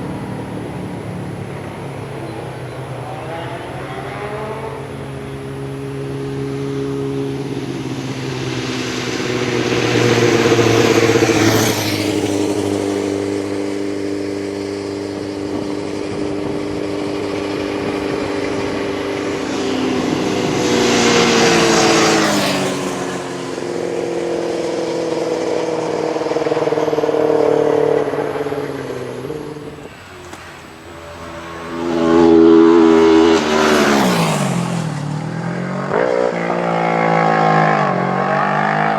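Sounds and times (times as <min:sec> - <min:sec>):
motorcycles passing by: 0:00.0 - 0:38.9
racing motorcycle engines: 0:00.0 - 0:38.9.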